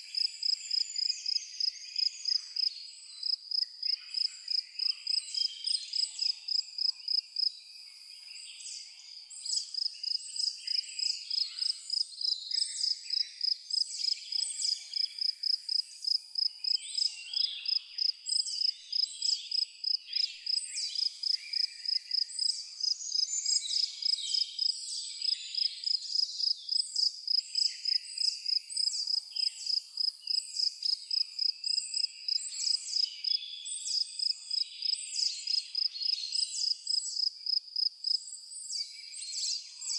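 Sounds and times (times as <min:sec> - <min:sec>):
crickets chirping: 0:25.6 - 0:33.4, 0:34.2 - 0:38.2
birds singing and calling: 0:38.2 - 0:39.9.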